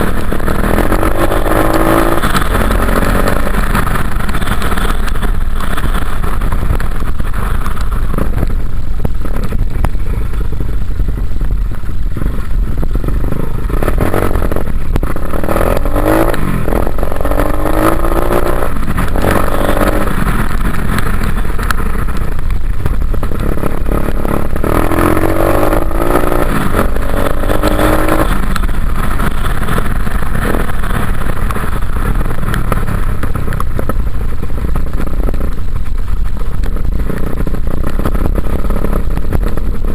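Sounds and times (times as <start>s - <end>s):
dirt bike engine revving: 0.0s - 6.5s, 13.0s - 22.1s, 23.3s - 31.8s.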